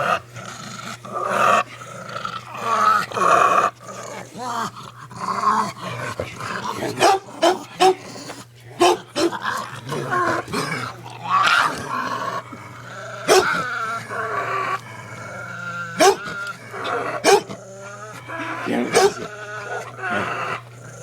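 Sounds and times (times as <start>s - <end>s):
dog growling: 0.0s - 21.0s
dog yipping: 16.0s - 16.3s.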